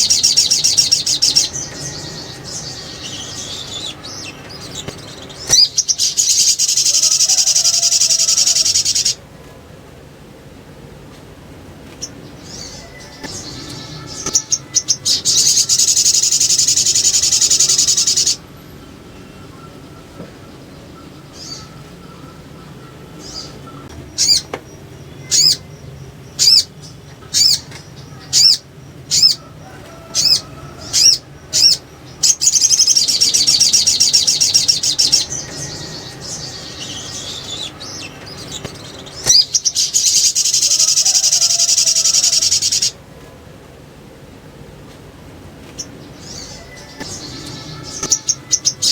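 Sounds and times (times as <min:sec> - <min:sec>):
bird fast chattering: 0:00.0 - 0:09.2
bird sharp high chips: 0:12.6 - 0:18.4, 0:46.2 - 0:48.9.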